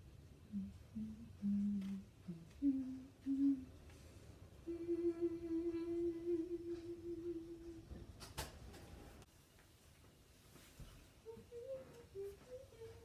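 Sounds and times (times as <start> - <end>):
woman humming: 0.5 - 3.8, 4.6 - 8.0, 11.2 - 13.0.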